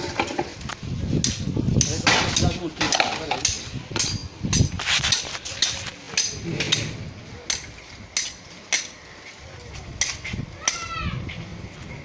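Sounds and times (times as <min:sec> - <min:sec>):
wooden sticks knocking: 0:01.2 - 0:06.9.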